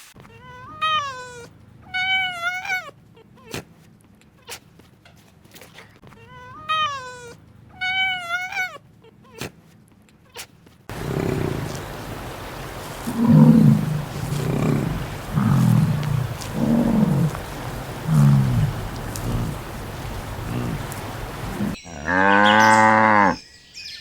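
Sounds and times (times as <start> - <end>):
animal short low calls: 10.9 - 21.8.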